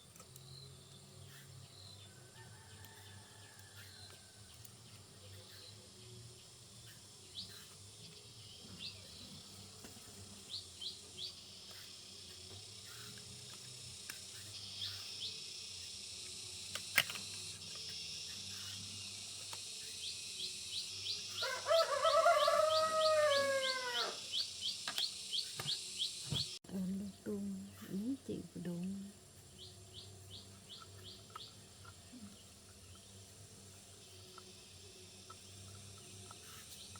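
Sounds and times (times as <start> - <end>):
insect hum: 0.0 - 36.9
animal call falling in pitch: 21.4 - 24.2.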